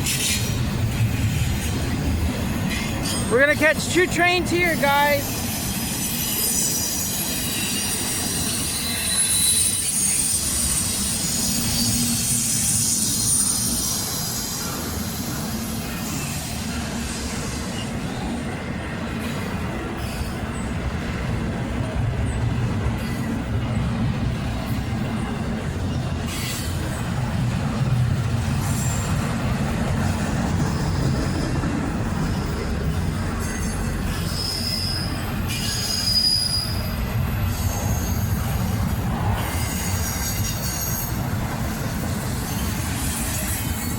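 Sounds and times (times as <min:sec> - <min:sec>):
high wheel squealing: 0:00.0 - 0:18.2, 0:30.6 - 0:43.9
freight train wheels rumbling: 0:00.0 - 0:43.9.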